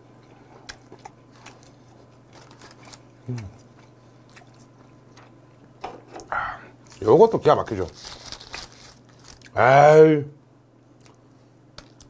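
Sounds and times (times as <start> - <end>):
steady low hum: 0.0 - 12.0
faint chewing: 0.2 - 7.0
small clicks and crunches: 0.6 - 3.7, 7.7 - 9.6
person humming mm: 3.2 - 3.6.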